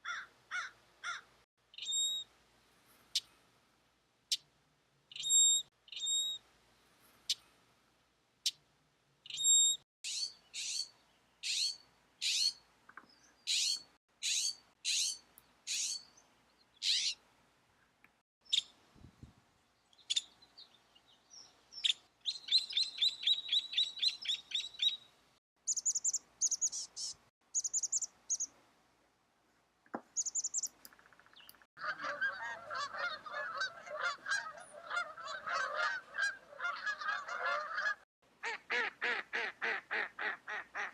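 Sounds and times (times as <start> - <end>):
birds calling sharply: 9.2 - 17.2, 19.9 - 25.1, 25.7 - 28.5, 30.2 - 38.0
birds chirping: 9.2 - 17.2, 19.7 - 28.5, 30.0 - 38.0
bird trilling: 9.3 - 12.6, 13.5 - 16.1, 16.8 - 17.2
many birds chattering: 31.3 - 38.0.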